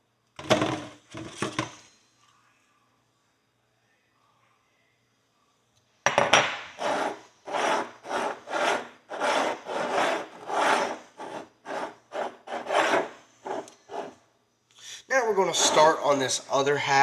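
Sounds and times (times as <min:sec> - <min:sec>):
knife scraping metal: 0:06.8 - 0:14.2, 0:15.5 - 0:16.0.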